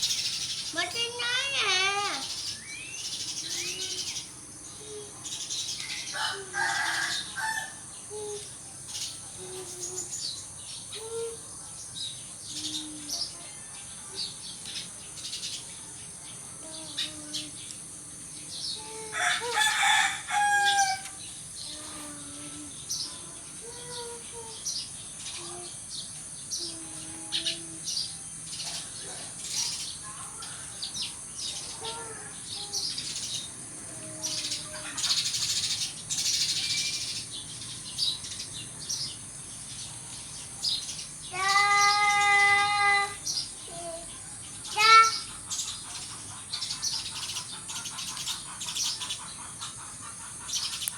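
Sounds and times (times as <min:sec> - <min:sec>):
sparrows chirping: 0:00.0 - 0:50.9
drawn-out bird call: 0:44.6 - 0:50.9.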